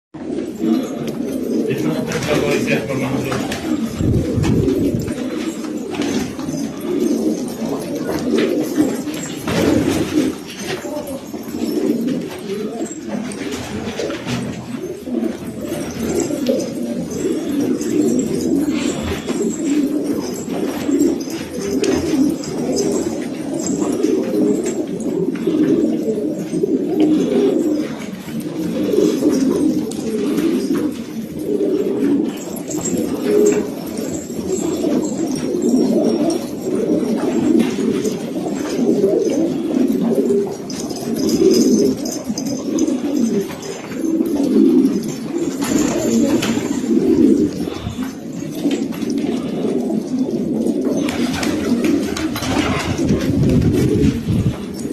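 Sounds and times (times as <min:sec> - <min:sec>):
pigeons cooing: 0:00.2 - 0:54.9.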